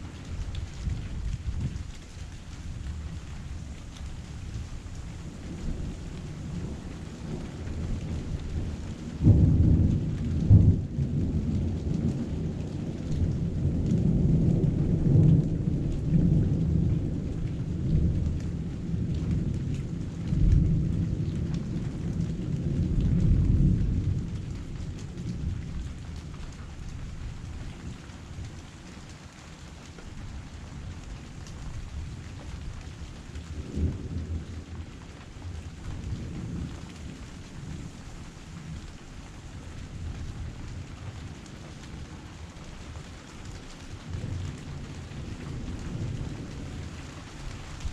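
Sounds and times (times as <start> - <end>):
heavy rain: 0.0 - 47.9
thunder rumbling: 4.4 - 28.6, 30.8 - 42.4.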